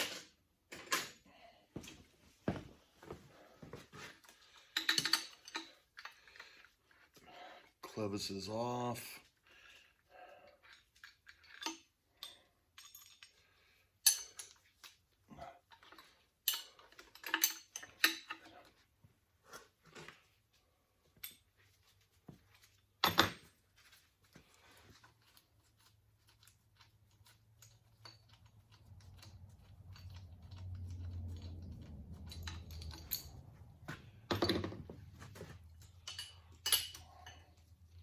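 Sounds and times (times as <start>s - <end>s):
metal tools clinking: 4.2s - 6.4s, 10.7s - 15.0s, 15.7s - 18.7s, 26.3s - 38.0s.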